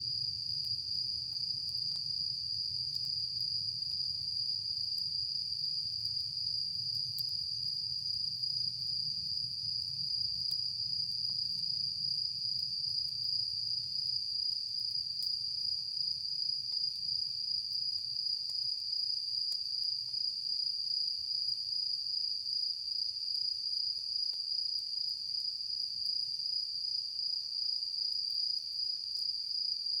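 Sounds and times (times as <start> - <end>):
campfire crackles: 0.0 - 22.4.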